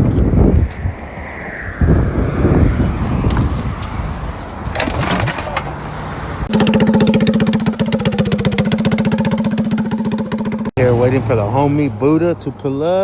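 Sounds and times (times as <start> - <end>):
wind noise: 0.0 - 6.5
small engine running: 6.5 - 11.0.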